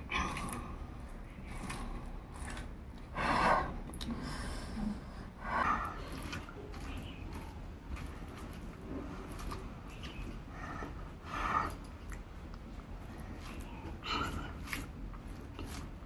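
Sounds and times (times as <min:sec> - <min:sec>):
person chewing food: 0:00.0 - 0:04.2, 0:05.0 - 0:16.0
breathing noises: 0:00.0 - 0:06.4.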